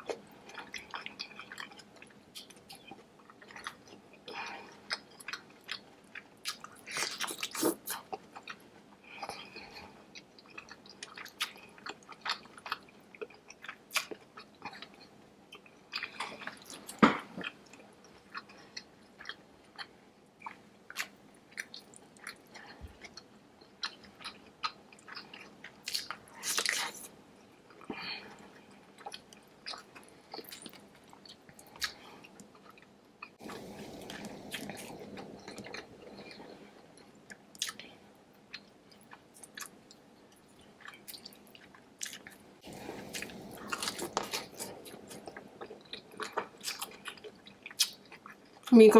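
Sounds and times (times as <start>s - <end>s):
wet chewing and biting: 40.8s - 48.6s.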